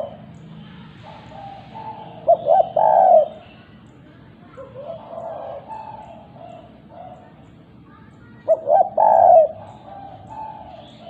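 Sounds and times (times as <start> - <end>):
dove cooing: 0.0 - 0.3, 0.9 - 3.5, 4.6 - 7.4, 8.4 - 11.0.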